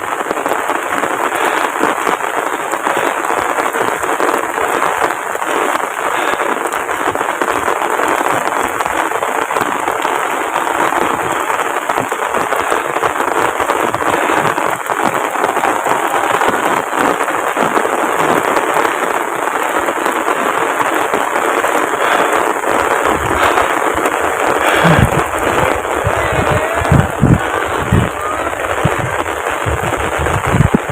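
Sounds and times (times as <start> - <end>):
heavy rain pouring: 0.0 - 30.9
low thumps: 24.8 - 30.8.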